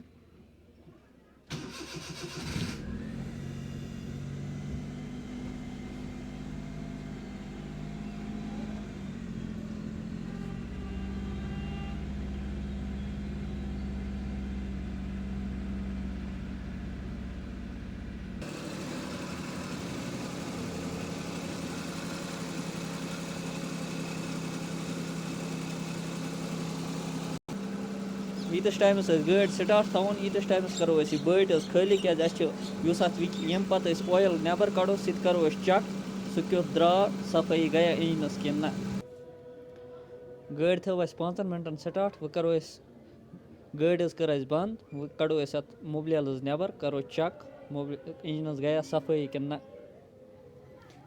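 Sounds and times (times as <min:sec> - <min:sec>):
car engine starting and idling: 0:01.5 - 0:39.0.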